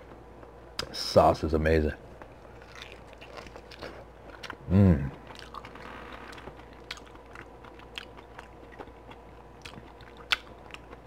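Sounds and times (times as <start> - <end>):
wet chewing and mouth smacks: 2.2 - 4.6, 5.2 - 11.0.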